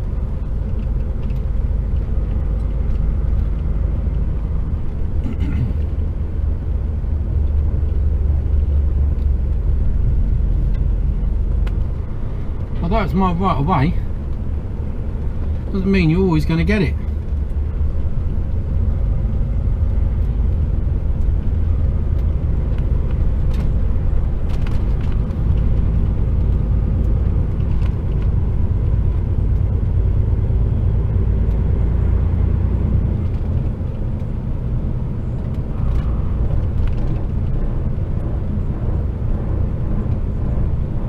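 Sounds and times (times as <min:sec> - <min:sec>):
diesel truck engine droning: 0:00.0 - 0:41.0
exhaust vibration: 0:00.0 - 0:41.0.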